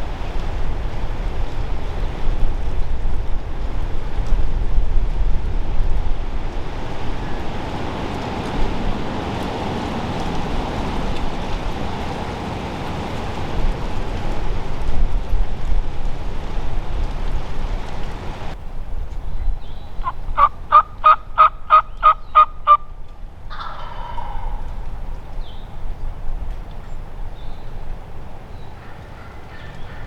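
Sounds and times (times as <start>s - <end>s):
steady rushing noise: 0.0s - 23.5s
wind buffeting microphone: 0.0s - 30.0s.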